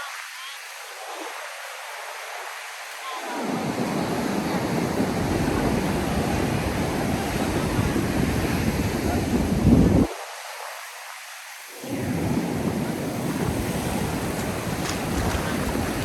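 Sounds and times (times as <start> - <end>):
ocean surf hissing: 0.0 - 16.0
wind buffeting microphone: 2.6 - 10.2, 11.8 - 16.0.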